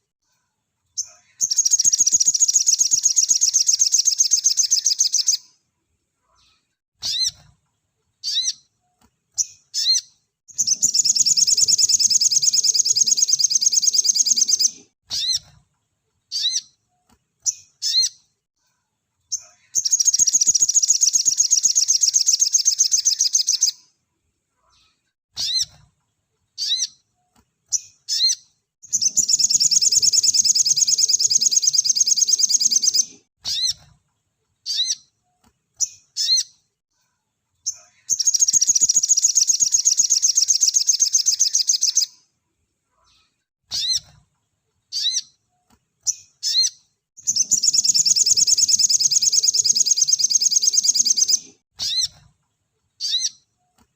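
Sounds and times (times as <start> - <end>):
bird sharp chirps: 1.0 - 5.5, 9.4 - 15.5, 19.3 - 23.9, 27.7 - 33.8, 37.6 - 42.2, 43.2 - 44.2, 46.0 - 52.2.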